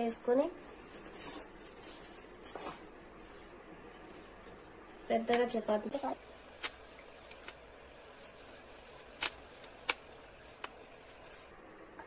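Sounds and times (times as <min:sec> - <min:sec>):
rolling pin rolling dough: 0:03.1 - 0:11.3.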